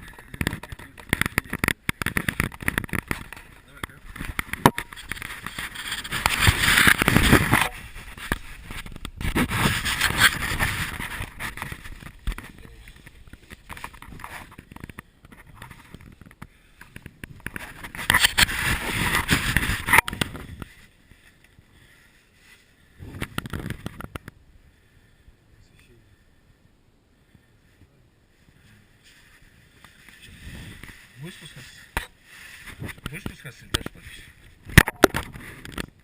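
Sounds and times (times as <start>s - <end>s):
clothing scraping against rock: 0.5s - 14.7s, 17.3s - 21.0s.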